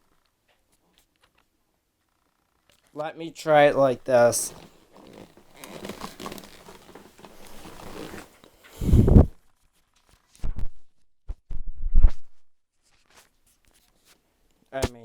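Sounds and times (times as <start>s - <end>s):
plastic scraping and rustling: 3.4s - 9.3s.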